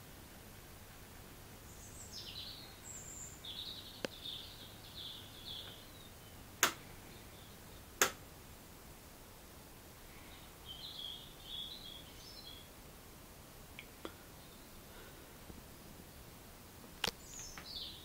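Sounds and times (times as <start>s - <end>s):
faint low hum: 0.0s - 18.0s
birds chirping: 1.5s - 8.2s, 10.1s - 12.8s, 13.8s - 15.4s, 16.0s - 18.0s
sharp clicks: 6.6s - 6.8s, 8.0s - 8.2s.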